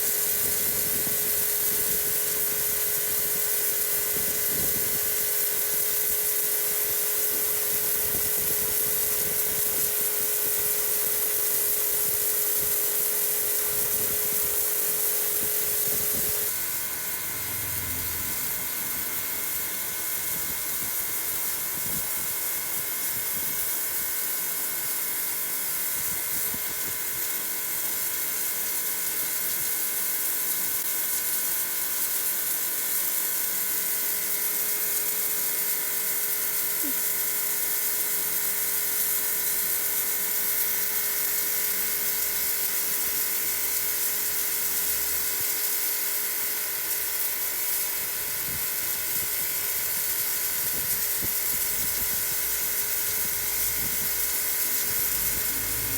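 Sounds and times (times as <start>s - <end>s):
water jet hissing on wall: 0.0s - 55.9s
pressure washer motor whining: 15.5s - 20.8s, 51.3s - 55.9s.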